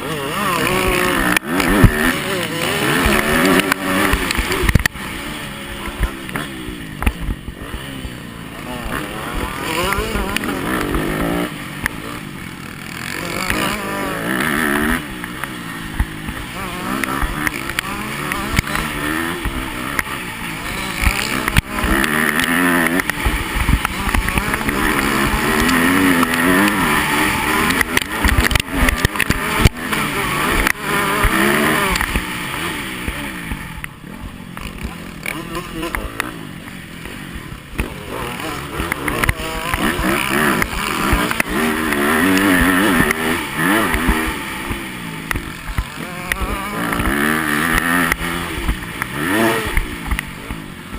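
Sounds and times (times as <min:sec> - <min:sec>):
motocross bike engine revving: 0:00.0 - 0:50.9
sharp knocks and clatter: 0:12.9 - 0:32.7.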